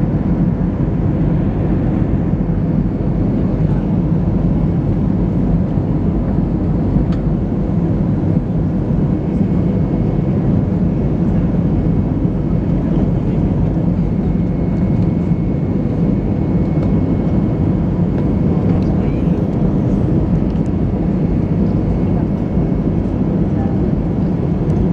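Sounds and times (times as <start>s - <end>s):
aircraft cabin rumble: 0.0s - 24.9s.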